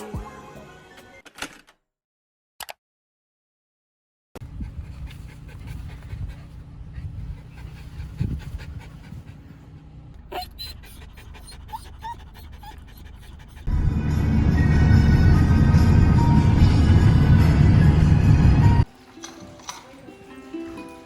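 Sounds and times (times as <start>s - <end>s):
dog panting: 4.5s - 13.7s.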